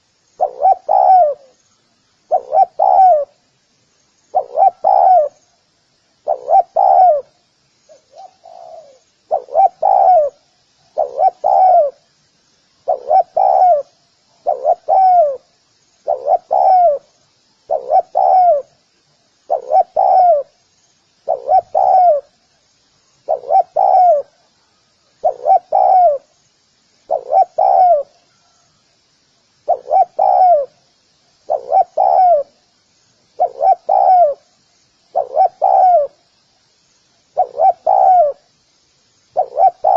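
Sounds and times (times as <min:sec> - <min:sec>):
dove cooing: 0:00.0 - 0:01.6, 0:02.3 - 0:03.4, 0:04.3 - 0:05.4, 0:06.2 - 0:07.3, 0:07.9 - 0:12.0, 0:12.8 - 0:17.1, 0:17.7 - 0:18.8, 0:19.5 - 0:20.6, 0:21.2 - 0:22.3, 0:23.2 - 0:24.5, 0:25.2 - 0:26.3, 0:27.1 - 0:28.6, 0:29.6 - 0:30.8, 0:31.5 - 0:32.6, 0:33.4 - 0:34.5, 0:35.1 - 0:36.2, 0:37.4 - 0:38.4, 0:39.4 - 0:39.9
faint high chirping: 0:00.0 - 0:39.9.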